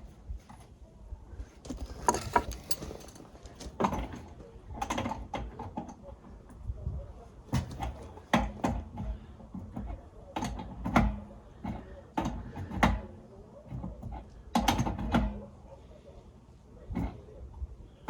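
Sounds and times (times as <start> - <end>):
metal tools knocking and clinking: 1.6 - 4.2.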